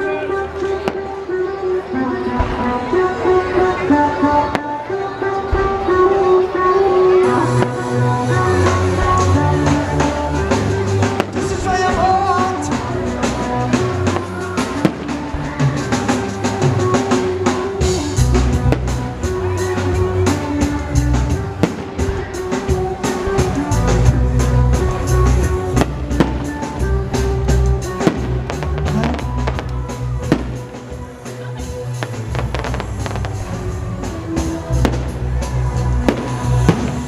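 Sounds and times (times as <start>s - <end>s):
loud music with heavy bass: 0.2s - 37.0s
fireworks cracking and banging: 7.4s - 37.0s.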